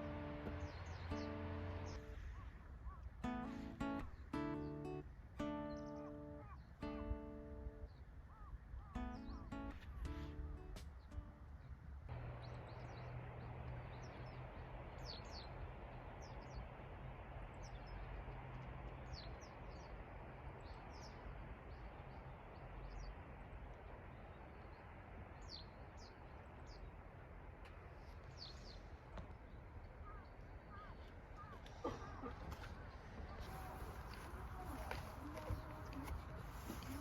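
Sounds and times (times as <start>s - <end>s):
small birds chirping: 0.0s - 37.0s
low hum: 9.0s - 28.4s.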